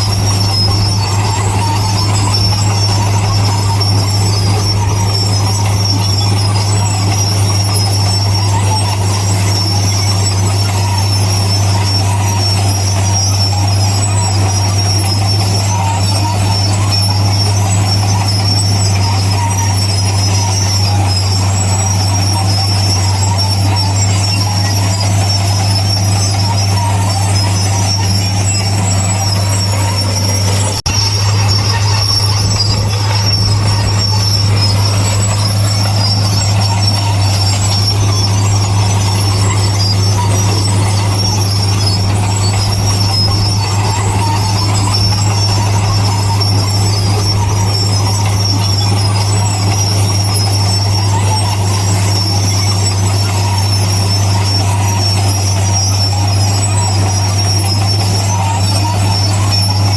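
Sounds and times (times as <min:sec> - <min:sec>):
heavy diesel engine droning: 0:00.0 - 0:59.9
high metallic squeal: 0:00.0 - 0:59.9.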